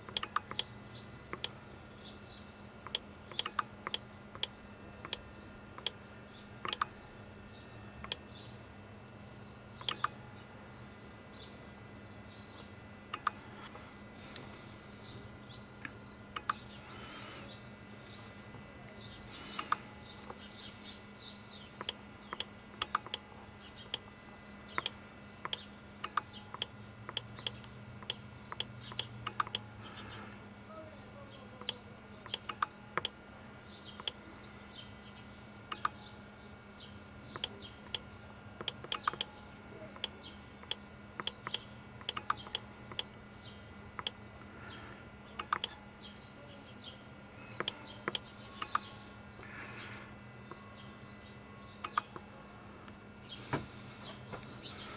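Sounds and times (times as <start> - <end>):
low electrical hum: 0.0 - 54.9
mouse clicks: 2.8 - 5.2, 6.6 - 7.0, 9.8 - 10.2, 13.1 - 13.4, 35.7 - 36.0, 45.4 - 45.8, 47.6 - 48.9, 51.8 - 52.2.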